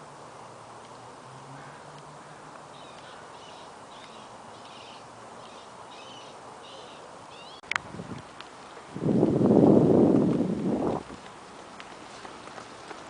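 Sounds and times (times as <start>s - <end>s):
steady background noise: 0.0s - 13.0s
bird calling: 1.6s - 7.7s.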